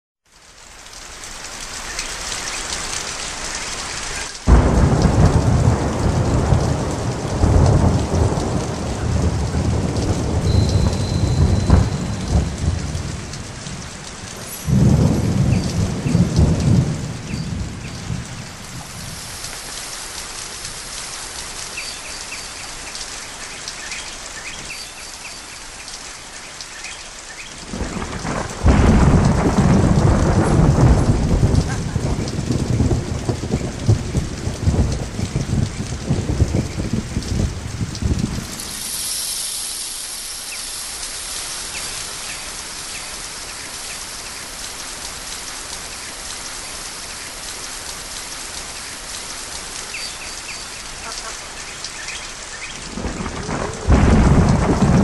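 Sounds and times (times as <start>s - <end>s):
steady rain falling: 0.2s - 55.0s
loud thunder rolls: 4.5s - 19.4s, 27.6s - 39.2s, 52.8s - 55.0s.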